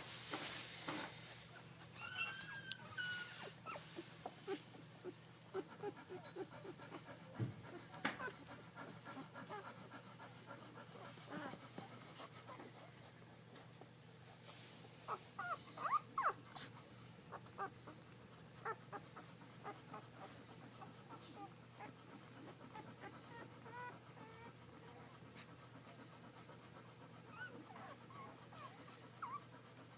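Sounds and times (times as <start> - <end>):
puppies whimpering and squeaking: 1.5 - 11.6, 15.1 - 25.3, 26.4 - 29.6.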